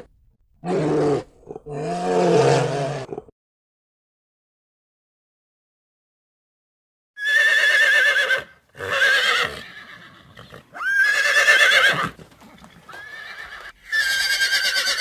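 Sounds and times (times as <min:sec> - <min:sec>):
horse whinnying: 0:07.2 - 0:15.0.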